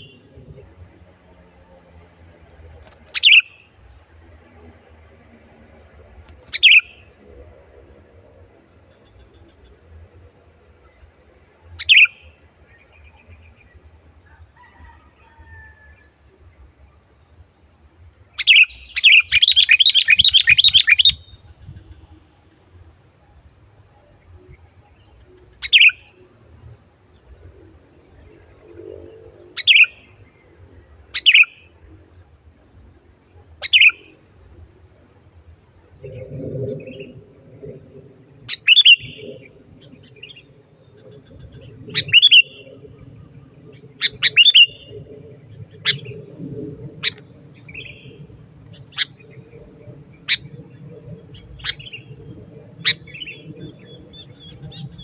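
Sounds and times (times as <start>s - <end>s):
bulbul calling: 3.1s - 3.7s, 6.4s - 7.1s, 11.8s - 12.2s, 18.4s - 22.0s, 38.5s - 39.4s, 41.6s - 42.7s, 44.0s - 45.0s.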